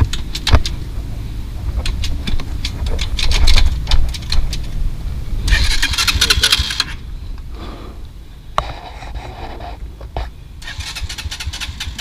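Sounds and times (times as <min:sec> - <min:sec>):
sharp clicks and knocks: 0:00.0 - 0:00.8, 0:01.6 - 0:04.8
small motorcycle engine idling: 0:05.4 - 0:07.4, 0:10.5 - 0:12.0.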